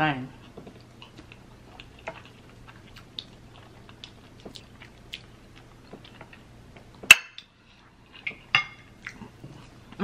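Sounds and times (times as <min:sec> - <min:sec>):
close-up chewing: 0:00.4 - 0:07.1.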